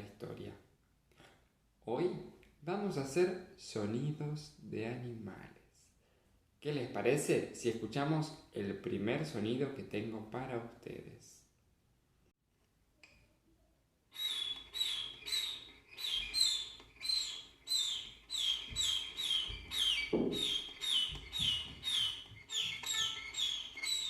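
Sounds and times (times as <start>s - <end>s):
baby chick peeping: 14.2s - 24.0s.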